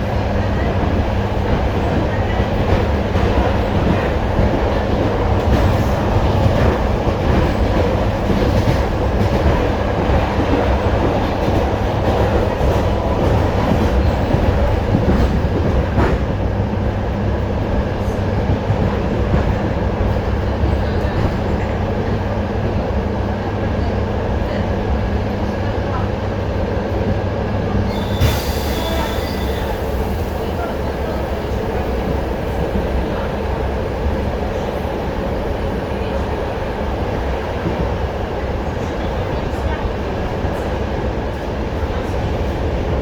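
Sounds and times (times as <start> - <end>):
train wheels clattering over rails: 0.6 - 17.0.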